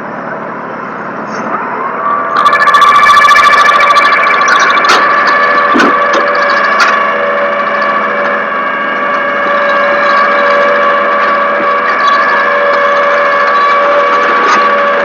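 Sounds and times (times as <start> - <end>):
steady mechanical whine: 2.4 - 5.6.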